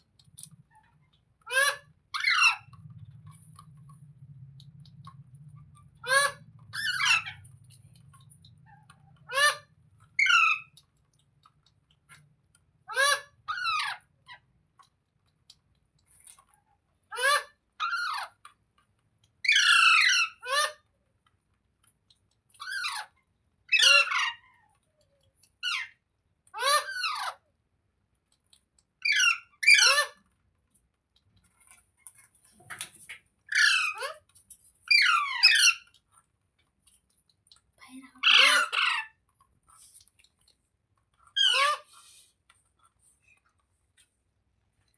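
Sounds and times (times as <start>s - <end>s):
parrot squawking: 1.4s - 2.8s, 5.8s - 7.5s, 8.6s - 10.8s, 12.9s - 14.4s, 19.4s - 20.8s, 22.6s - 23.1s, 23.7s - 24.6s, 25.6s - 26.0s, 26.6s - 27.4s, 29.0s - 30.2s, 33.5s - 34.2s, 34.9s - 35.9s, 38.2s - 39.2s, 41.3s - 42.0s.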